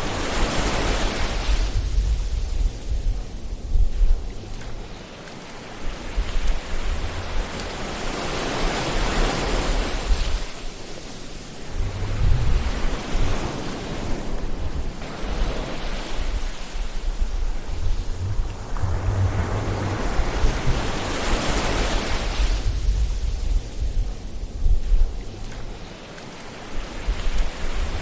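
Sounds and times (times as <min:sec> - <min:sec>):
ocean waves breaking on shore: 0:00.0 - 0:28.0
low rumble: 0:11.7 - 0:13.3, 0:16.2 - 0:25.9.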